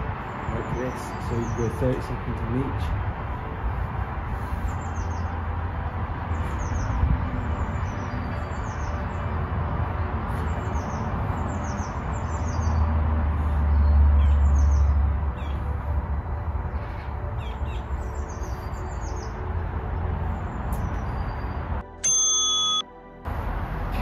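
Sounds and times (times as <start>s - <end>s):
small birds chirping: 4.4s - 5.4s, 6.2s - 9.4s, 10.2s - 15.9s, 16.8s - 21.7s.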